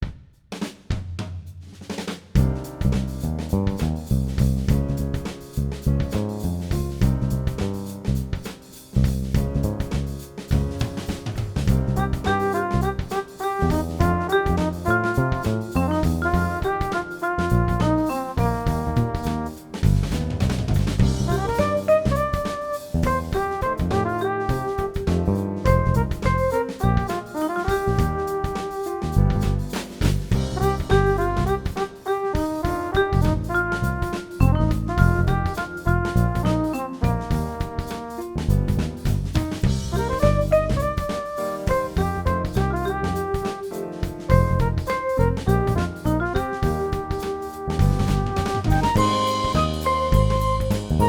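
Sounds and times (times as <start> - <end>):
band music with drums and keyboard: 2.4 - 51.0.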